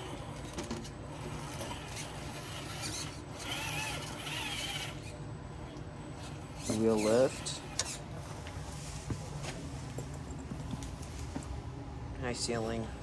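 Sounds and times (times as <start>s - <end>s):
electric motor whining: 0.0s - 8.2s.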